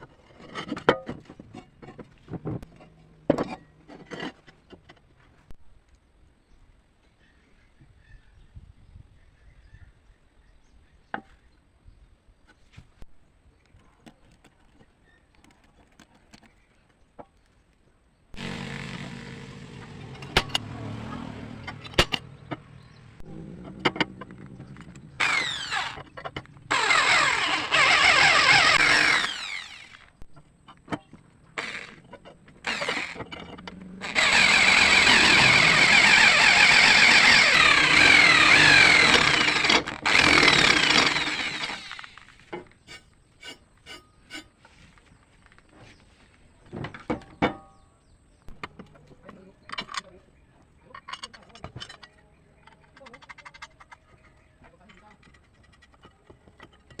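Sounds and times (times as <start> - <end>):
power tool motor running: 18.4 - 30.2, 31.5 - 42.4.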